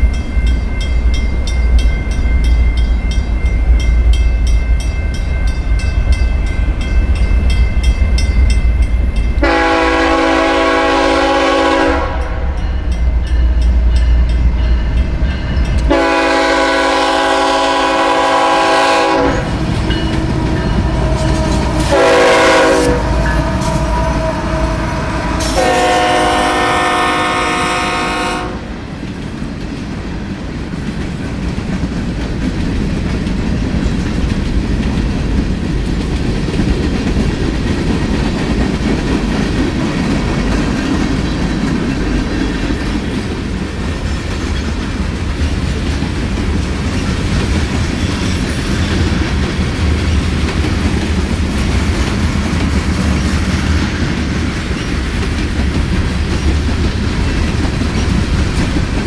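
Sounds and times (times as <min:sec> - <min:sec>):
locomotive air horn blasts: 0:09.4 - 0:12.6, 0:15.9 - 0:19.6, 0:20.3 - 0:28.8
freight cars rumbling past: 0:19.2 - 0:26.7.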